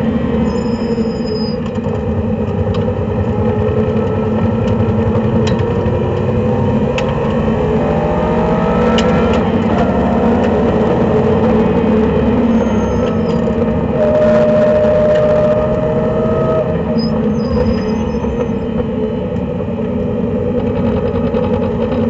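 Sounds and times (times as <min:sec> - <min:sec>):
faint rising tone: 0:07.6 - 0:18.7.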